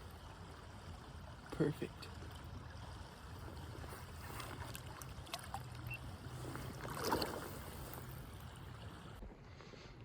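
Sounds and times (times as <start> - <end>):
river water running: 0.0 - 9.3
water splash: 3.8 - 8.8.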